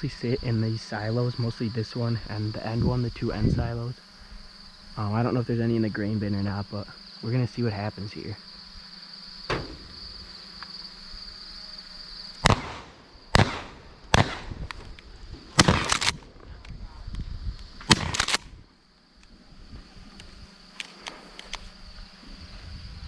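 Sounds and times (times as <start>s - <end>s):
insects chirring: 0.0s - 23.0s
shotgun shots: 12.4s - 14.9s, 15.5s - 16.3s, 17.9s - 18.5s.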